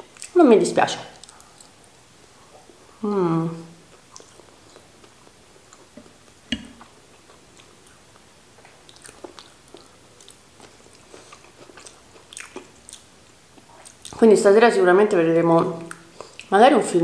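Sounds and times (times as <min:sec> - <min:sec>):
chewing with wet clicks and crunches: 0:01.2 - 0:01.8, 0:03.9 - 0:05.9, 0:08.6 - 0:14.2, 0:15.8 - 0:16.6.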